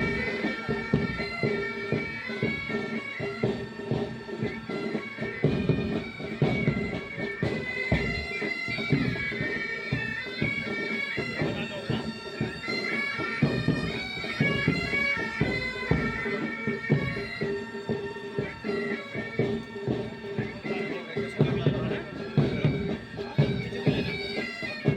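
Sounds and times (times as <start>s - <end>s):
bagpipes with drones: 0.0s - 24.9s
drum beat: 0.0s - 24.9s.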